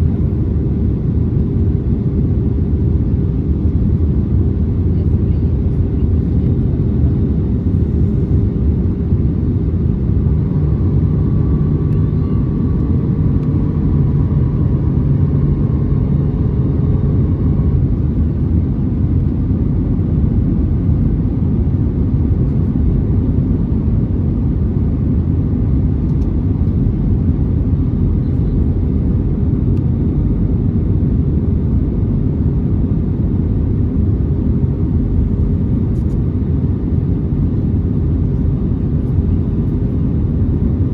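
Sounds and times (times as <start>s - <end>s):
airliner cabin engine noise: 0.0s - 40.9s.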